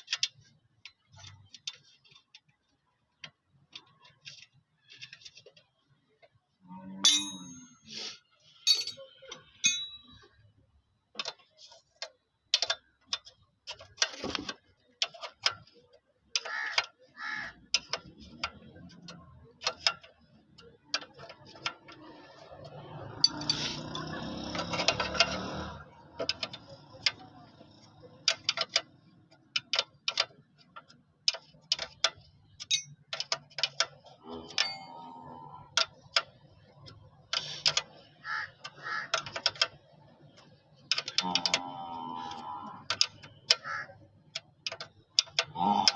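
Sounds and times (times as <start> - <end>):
metallic clicks of hand tools: 12.0 - 45.9.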